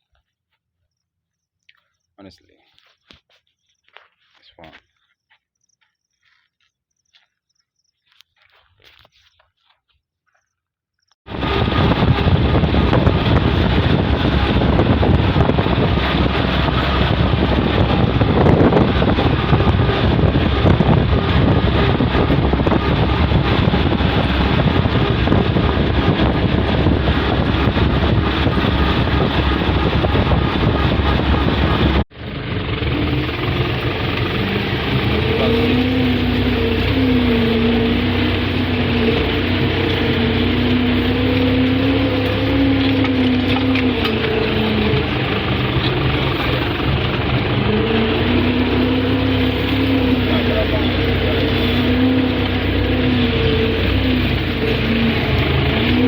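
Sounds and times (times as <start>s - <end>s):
steady tones: 11.3s - 56.0s
tractor diesel engine running: 11.3s - 56.0s.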